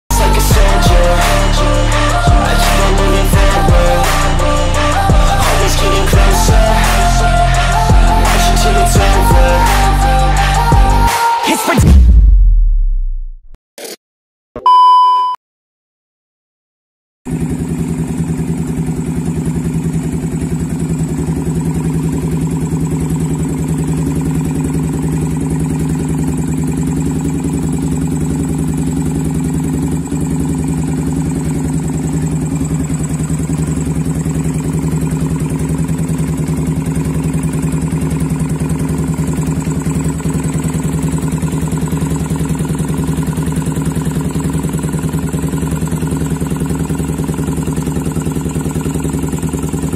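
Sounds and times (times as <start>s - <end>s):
motorcycle engine idling: 17.3s - 49.9s.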